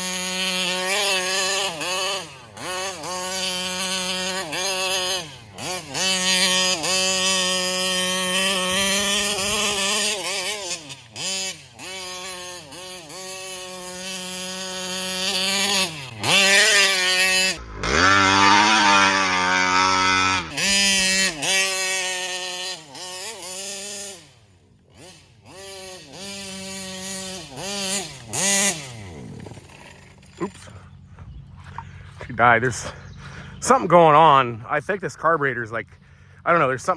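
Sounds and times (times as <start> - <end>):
two-stroke engine revving: 0.0 - 35.2.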